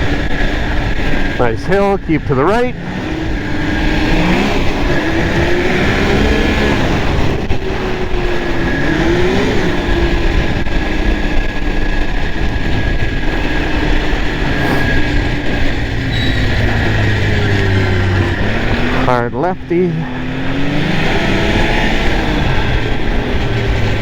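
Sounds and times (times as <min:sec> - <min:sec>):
wind noise on microphone: 0:00.0 - 0:19.1
snowmobile engine revving: 0:00.0 - 0:24.0.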